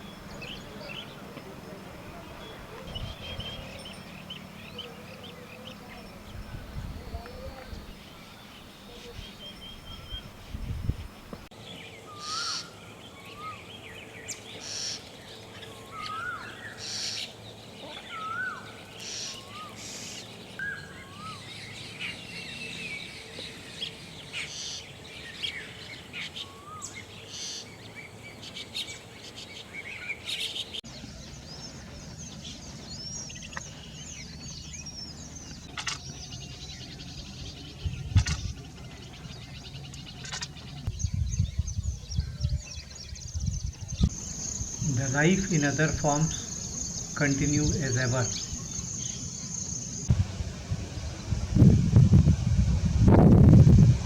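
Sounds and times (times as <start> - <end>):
birds chirping: 0.0 - 54.0
birds twittering chorus: 0.0 - 54.0.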